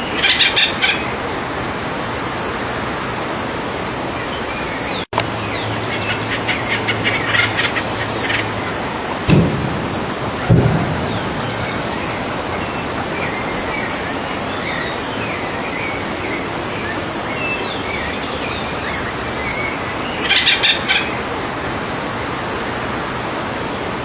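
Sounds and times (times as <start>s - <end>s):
steady hiss: 5.5s - 18.4s.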